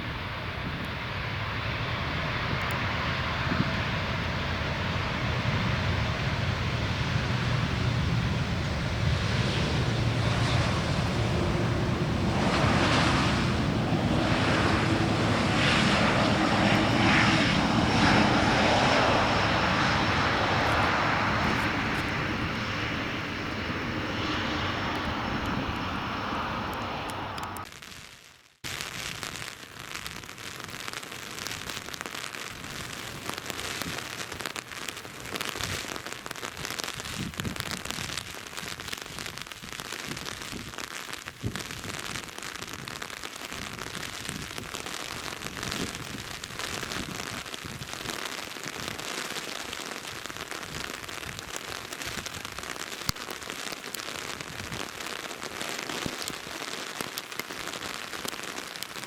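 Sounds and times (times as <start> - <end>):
steady rain: 0.0 - 27.9, 28.6 - 59.0
raindrops ticking close: 33.0 - 59.0.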